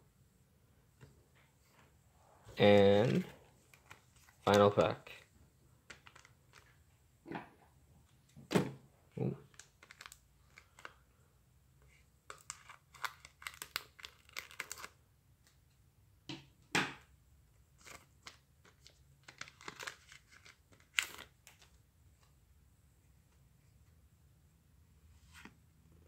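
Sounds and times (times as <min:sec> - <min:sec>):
cards being handled: 0:02.7 - 0:05.3, 0:05.9 - 0:06.8, 0:12.2 - 0:15.0, 0:17.8 - 0:22.3
wrapper crinkling and tearing: 0:05.9 - 0:06.7, 0:09.4 - 0:11.0, 0:12.3 - 0:15.0, 0:17.8 - 0:21.7.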